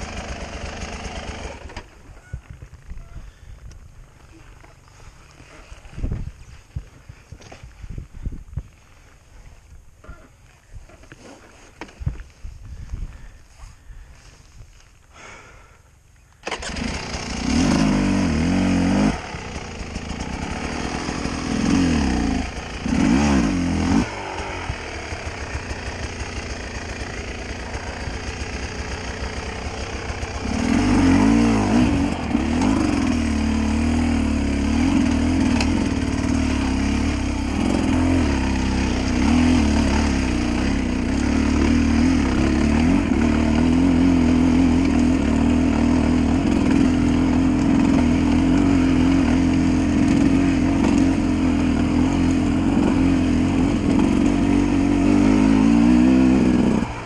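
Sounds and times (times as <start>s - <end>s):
dirt bike engine revving: 0.0s - 2.1s, 16.4s - 57.0s.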